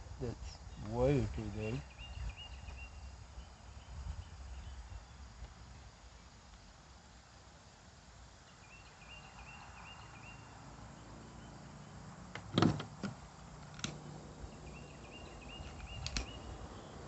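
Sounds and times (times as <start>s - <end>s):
faint rhythmic chirping: 0.2s - 12.2s, 13.1s - 17.0s
light handling clicks: 12.4s - 14.0s, 15.6s - 16.4s.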